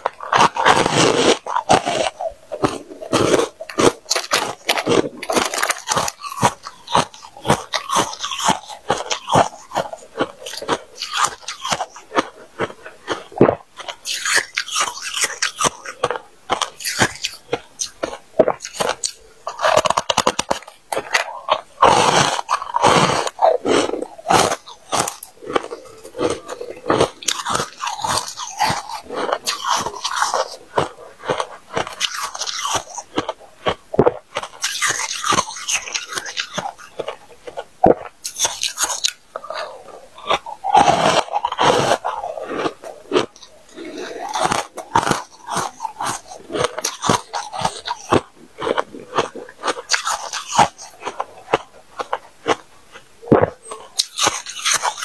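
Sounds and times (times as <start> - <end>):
person crunching ice: 0.0 - 55.0.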